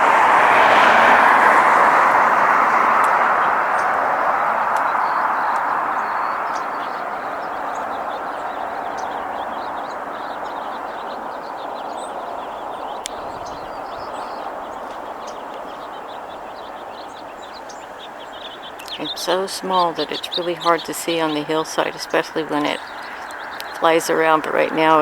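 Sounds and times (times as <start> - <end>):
passing vehicle rushing: 0.0 - 25.0
faint bird chirps: 4.4 - 25.0.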